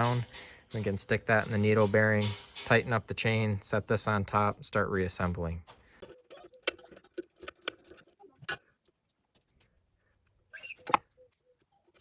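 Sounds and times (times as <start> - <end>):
metal tools clicking and clinking: 0.0 - 3.7.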